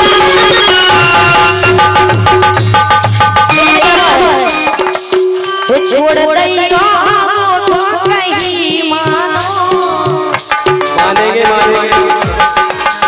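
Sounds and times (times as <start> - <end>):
wavering melody line: 0.0 - 9.0
hand drum beat: 0.0 - 13.0
rattling metal percussion: 0.0 - 13.0.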